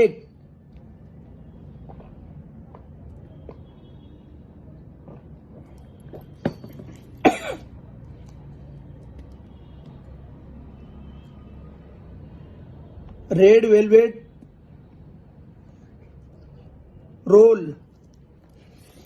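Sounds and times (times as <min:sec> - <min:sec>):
person coughing: 0:07.2 - 0:07.7.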